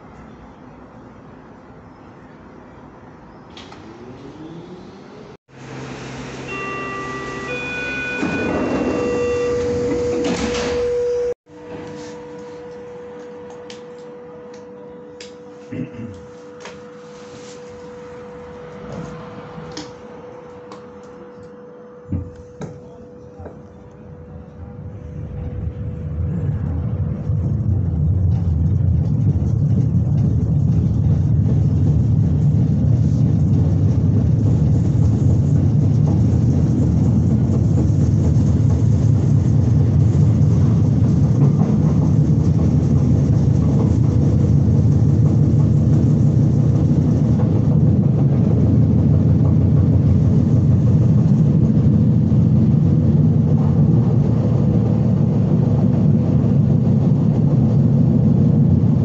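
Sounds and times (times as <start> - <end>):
train wheels rumbling: 3.6 - 11.8, 22.1 - 59.0.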